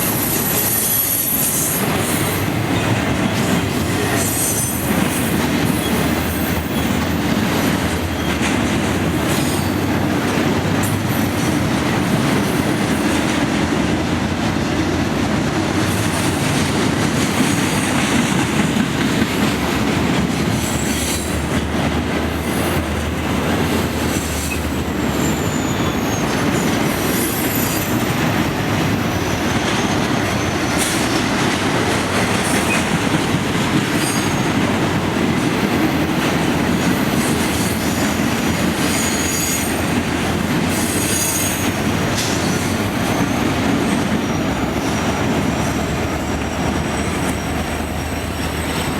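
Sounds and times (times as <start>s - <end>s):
freight train rumbling past: 0.0s - 48.9s
wheel squeals: 24.4s - 28.0s, 38.8s - 39.9s.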